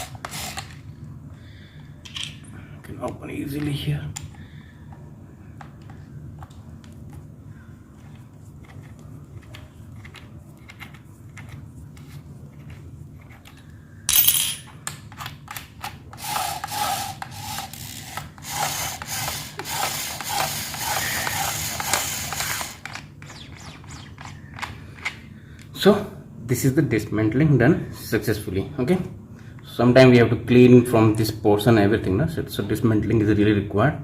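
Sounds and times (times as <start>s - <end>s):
clicks of parts being handled: 2.0s - 2.4s
rubbing and scraping of parts: 7.9s - 25.3s.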